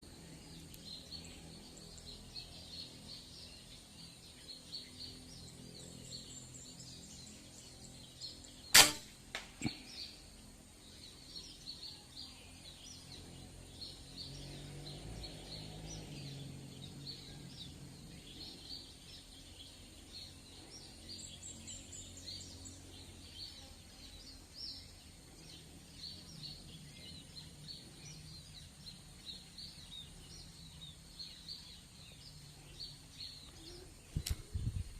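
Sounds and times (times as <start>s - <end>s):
birds chirping: 0.0s - 34.9s
air rifle shot crack: 8.7s - 9.7s.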